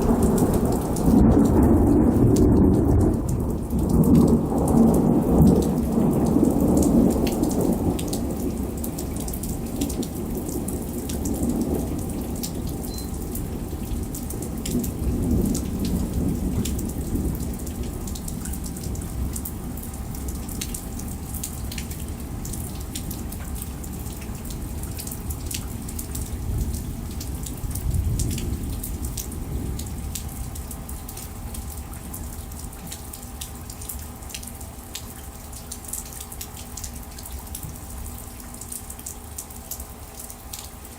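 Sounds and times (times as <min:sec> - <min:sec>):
thunder rumbling: 0:00.0 - 0:31.5
rain and hail ticking: 0:00.0 - 0:40.9
steady rain: 0:00.0 - 0:40.9.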